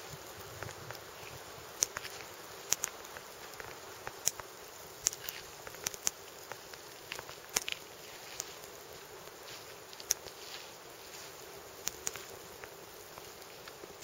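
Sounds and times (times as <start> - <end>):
faint steady hiss: 0.0 - 14.0
knife clicks and ticks: 1.8 - 6.6, 7.5 - 7.8, 11.8 - 12.2.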